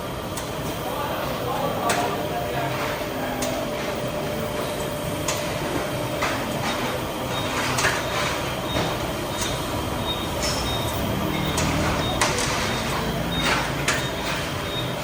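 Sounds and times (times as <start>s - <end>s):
steady mechanical rumble: 0.0s - 15.0s.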